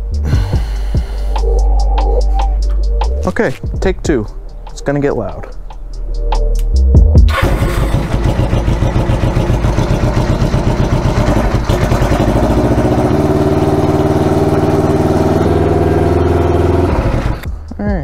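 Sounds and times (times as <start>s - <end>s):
motorcycle engine revving: 7.3s - 17.5s.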